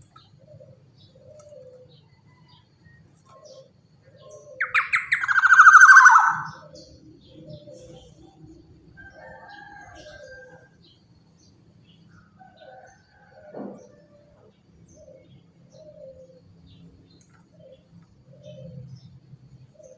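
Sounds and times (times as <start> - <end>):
soft whistled bird notes: 4.4 - 8.5
oriole rasping call: 4.6 - 6.8.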